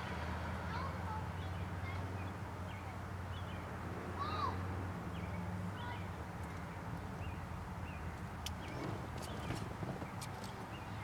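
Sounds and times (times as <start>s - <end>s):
birds chirping: 7.2s - 11.0s.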